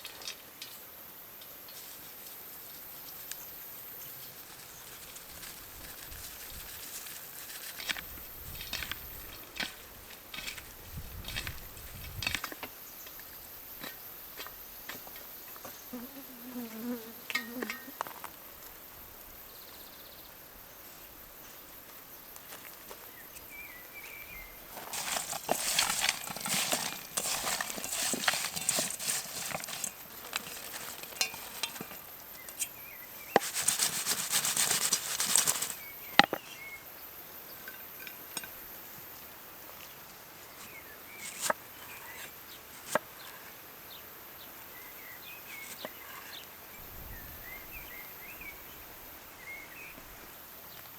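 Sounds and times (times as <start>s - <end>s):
pan clattering: 24.7s - 32.1s, 33.3s - 36.4s.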